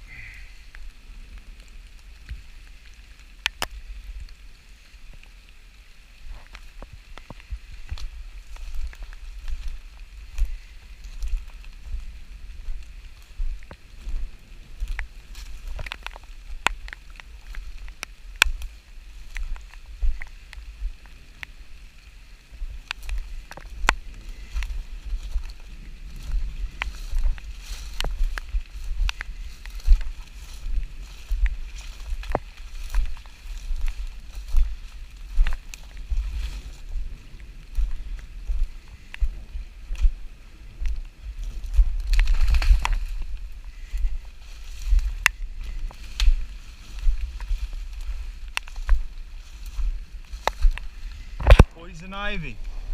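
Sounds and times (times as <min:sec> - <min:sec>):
raindrops tapping: 0:00.0 - 0:37.0
low wind rumble: 0:00.0 - 0:52.9.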